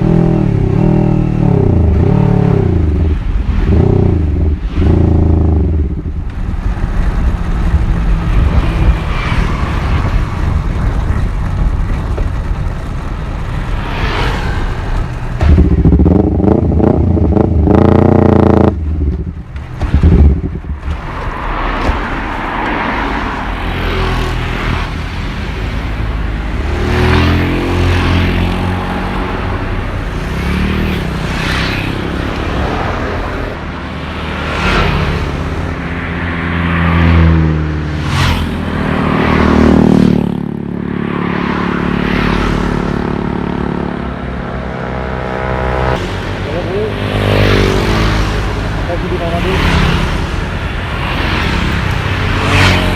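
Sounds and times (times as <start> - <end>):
motorcycle engine revving: 0.0 - 21.2, 37.0 - 52.9
road and wind noise: 0.0 - 52.9.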